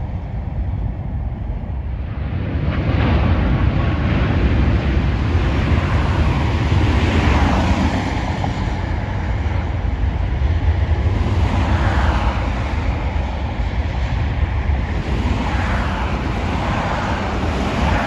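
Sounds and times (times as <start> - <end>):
jet airliner rumble: 0.0 - 18.0
wind on microphone: 0.0 - 18.0.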